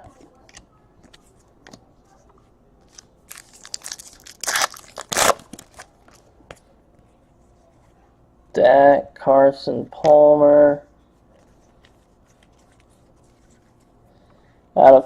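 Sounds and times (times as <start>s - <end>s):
packaging rustling and crinkling: 2.9s - 6.3s.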